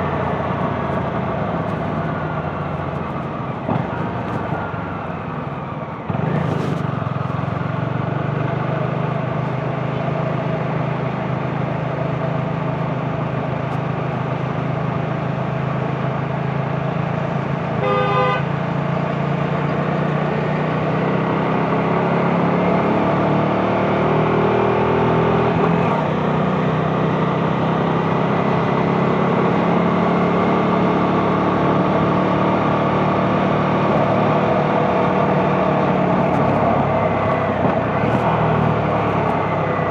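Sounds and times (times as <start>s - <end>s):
motorcycle engine running: 0.0s - 17.6s, 22.3s - 39.9s
vehicle horn honking: 17.8s - 18.6s.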